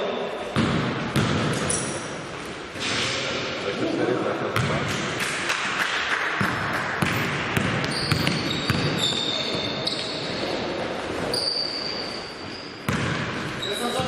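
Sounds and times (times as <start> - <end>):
sneakers squeaking on floor: 0.0 - 2.7, 6.4 - 14.0
echoing hall noise: 0.0 - 14.0
basketball bouncing on court: 0.5 - 1.8, 4.6 - 10.4, 12.8 - 14.0.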